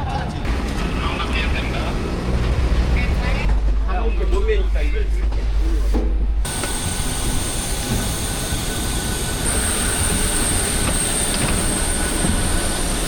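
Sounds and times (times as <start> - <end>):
jet engines inside cabin: 6.4 - 13.0.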